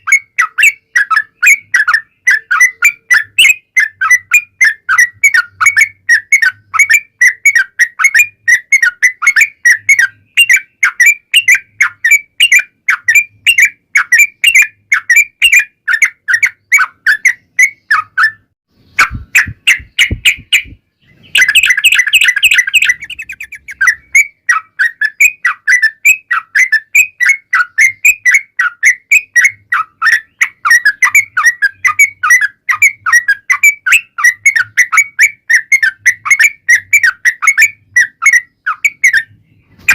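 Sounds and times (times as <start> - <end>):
bird chattering call: 0.0 - 39.9.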